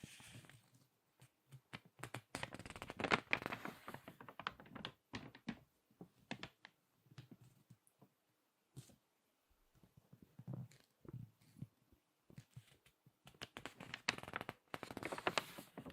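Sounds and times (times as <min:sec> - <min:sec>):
magazine pages crackling: 0:02.0 - 0:05.6, 0:12.6 - 0:15.9.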